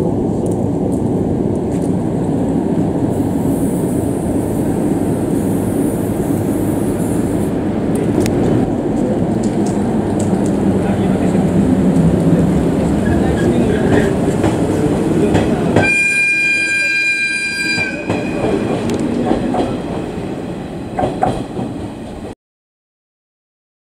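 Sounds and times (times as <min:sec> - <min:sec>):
train wheels rumbling and clacking: 0:00.0 - 0:22.3
train horn: 0:15.8 - 0:18.5.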